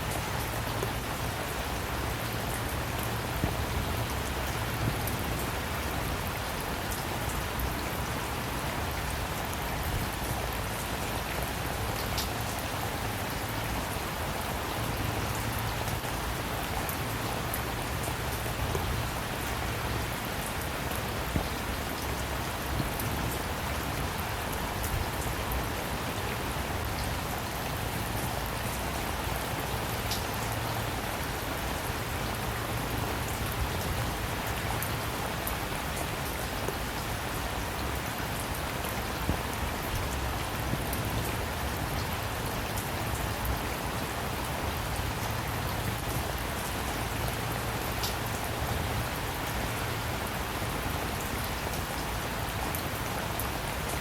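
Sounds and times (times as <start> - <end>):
raindrops tapping on a surface: 0.0 - 5.9, 15.1 - 25.6, 29.6 - 30.9, 39.2 - 43.5, 47.3 - 48.8
steady rainfall: 0.0 - 54.0.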